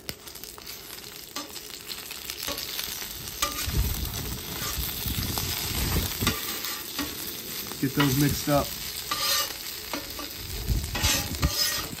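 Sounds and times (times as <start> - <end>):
tacos sizzling on griddle: 0.0 - 12.0
metal spatula scraping steel plate: 3.4 - 3.7, 6.2 - 7.2, 9.1 - 12.0.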